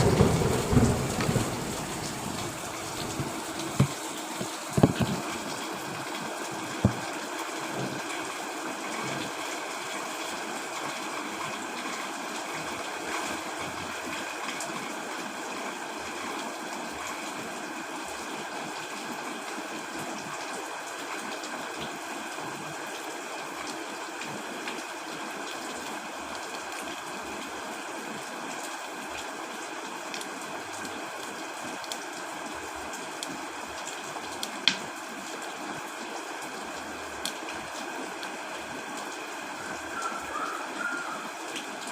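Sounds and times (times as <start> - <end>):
heavy rain drumming on a tent: 0.0 - 41.9
louder tap: 6.8 - 7.0.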